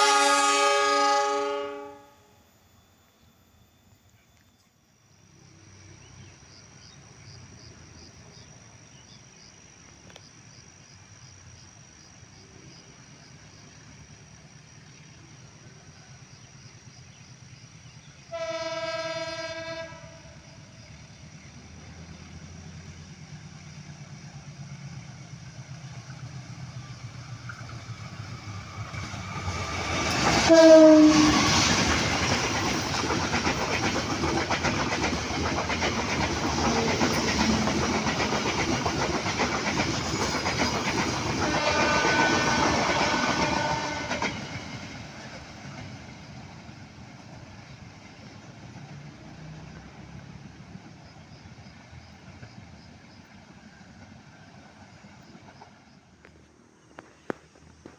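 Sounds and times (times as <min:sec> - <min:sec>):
train horn: 0:00.0 - 0:02.5, 0:18.2 - 0:20.6, 0:29.9 - 0:31.8, 0:41.4 - 0:44.5
train passing: 0:00.0 - 0:57.9.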